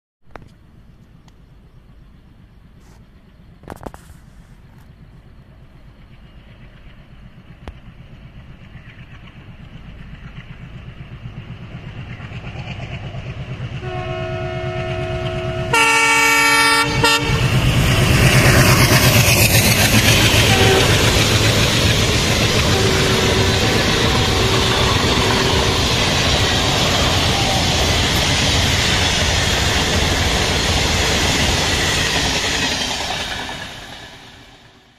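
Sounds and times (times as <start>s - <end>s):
train rumbling: 0.3s - 34.9s
wheel and rail noise: 0.3s - 34.9s
locomotive horn blasts: 13.8s - 17.6s, 20.1s - 27.8s.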